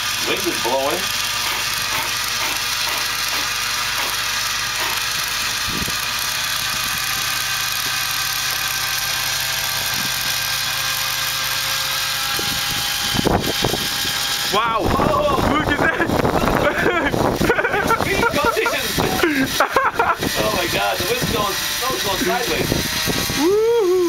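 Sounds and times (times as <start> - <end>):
model airplane motor running: 0.0 - 24.0
wind gusting on microphone: 5.6 - 6.0, 12.3 - 19.2, 22.4 - 23.5.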